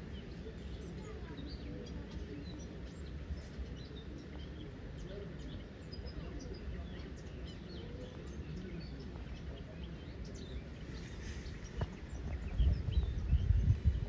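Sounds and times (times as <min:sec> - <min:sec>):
small birds chirping: 0:00.0 - 0:14.0
low rustling rumble: 0:10.6 - 0:14.0.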